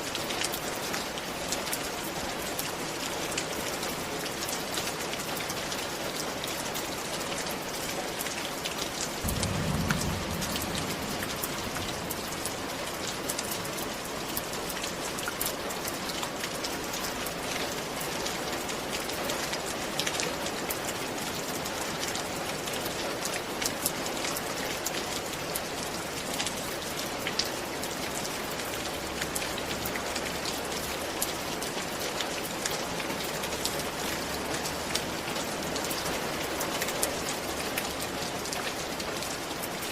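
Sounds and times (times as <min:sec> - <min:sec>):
rain falling: 0:00.0 - 0:39.9
low rumble: 0:09.2 - 0:13.6.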